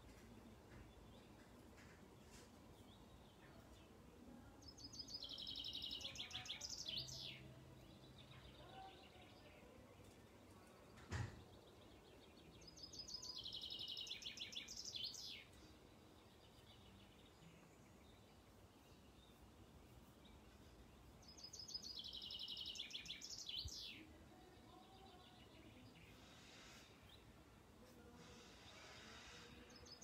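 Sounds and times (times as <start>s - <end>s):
songbird singing trilled phrases: 4.6s - 10.5s, 11.6s - 19.5s, 20.2s - 26.3s.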